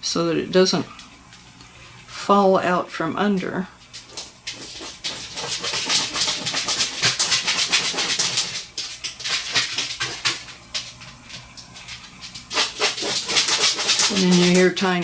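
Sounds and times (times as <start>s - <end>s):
pet scratching with claws: 3.9s - 11.0s, 11.8s - 15.0s.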